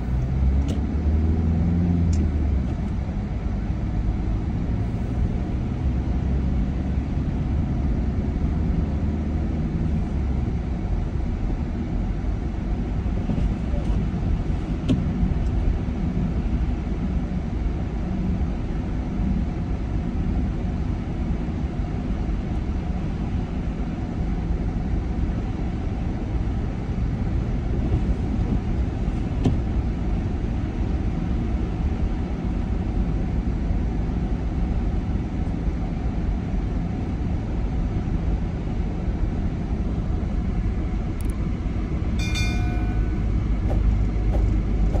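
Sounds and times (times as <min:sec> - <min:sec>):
car driving on road: 0:00.0 - 0:45.0
short pitched tone: 0:42.2 - 0:43.9.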